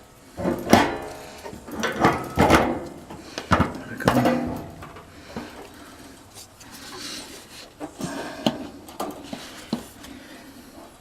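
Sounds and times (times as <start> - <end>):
metal scraping and knocking: 0.4 - 5.1.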